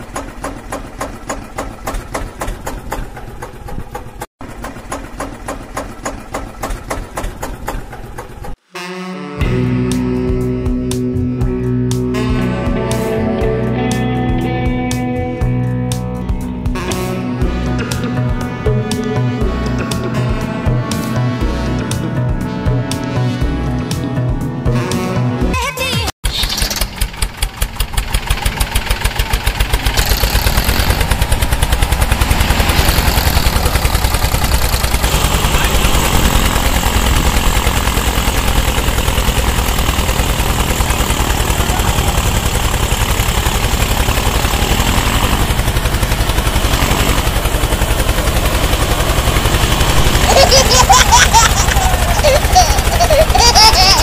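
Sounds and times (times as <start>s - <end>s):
tractor engine running: 0.0s - 8.6s, 26.2s - 54.0s.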